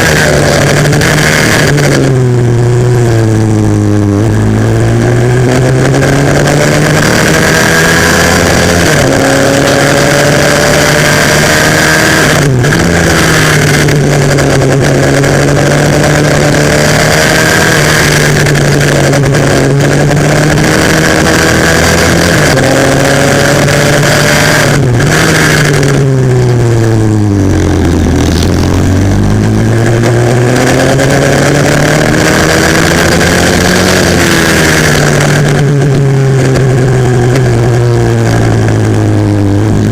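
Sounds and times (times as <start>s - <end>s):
motorbike engine revving through gears: 0.0s - 39.9s.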